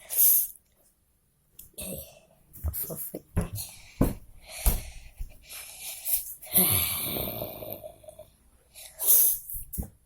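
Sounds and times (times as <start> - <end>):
person wheezing breathily: 4.5 - 7.8.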